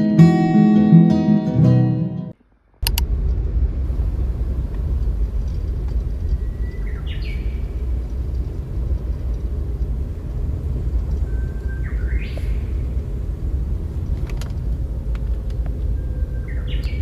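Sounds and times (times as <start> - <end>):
steady low rumble: 2.4 - 17.0
faint clicks: 2.8 - 3.4, 4.6 - 12.8, 13.9 - 16.0
bird whistling call: 6.4 - 7.7, 11.2 - 12.8, 15.9 - 17.0.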